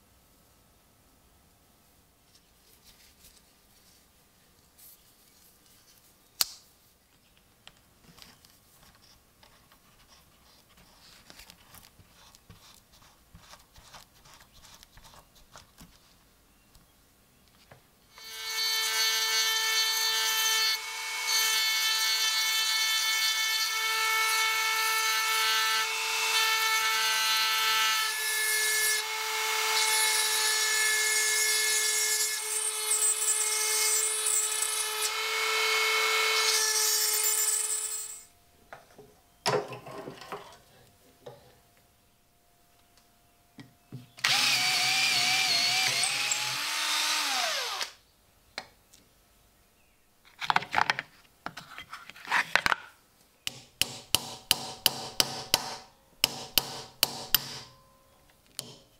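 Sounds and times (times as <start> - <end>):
power tool whining on metal: 44.2 - 48.0.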